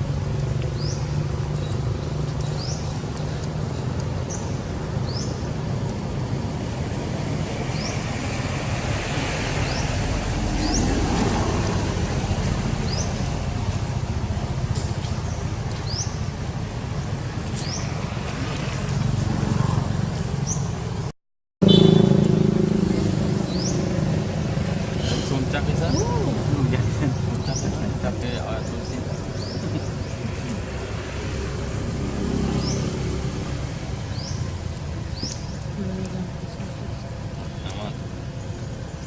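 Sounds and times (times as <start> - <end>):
vehicle passing: 0.0 - 21.0, 21.6 - 38.9
road traffic rumble: 0.0 - 39.0
bird chirping: 4.2 - 5.5, 25.1 - 30.6, 34.0 - 35.8.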